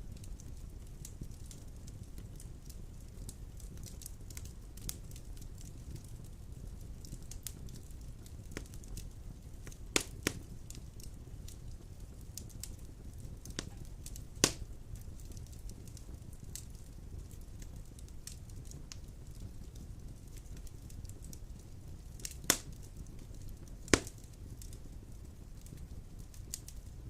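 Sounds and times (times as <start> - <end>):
burning wood popping: 0.0 - 27.0
fire crackles: 0.0 - 27.0
flames rumbling: 0.0 - 27.0.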